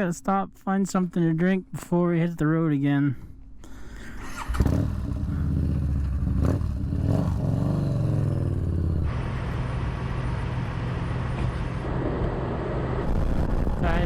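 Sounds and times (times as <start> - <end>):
motorcycle engine revving: 4.2 - 11.9
rushing wind: 11.6 - 14.0.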